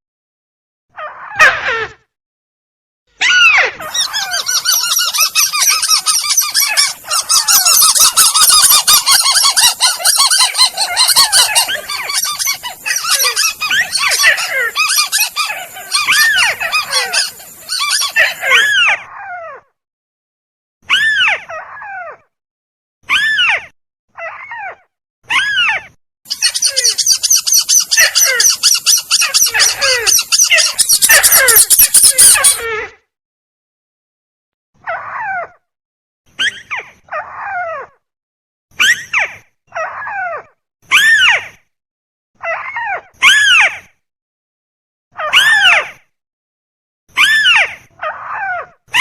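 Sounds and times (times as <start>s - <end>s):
crakes calling: 3.8s - 18.7s, 26.3s - 32.6s
dense high-pitched chatter: 3.8s - 18.9s, 26.3s - 32.6s.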